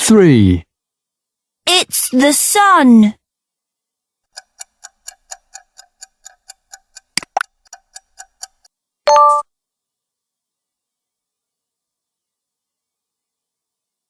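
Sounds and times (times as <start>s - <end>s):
clock ticking: 4.3s - 8.8s.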